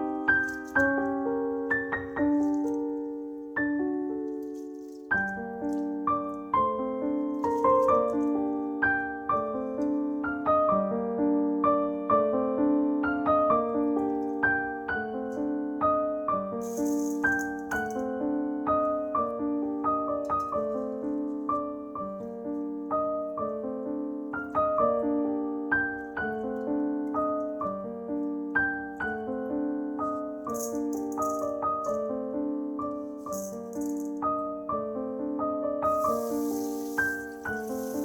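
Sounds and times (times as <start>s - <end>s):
piano music: 0.0s - 38.0s
brief rattling: 16.6s - 18.0s, 35.9s - 38.0s.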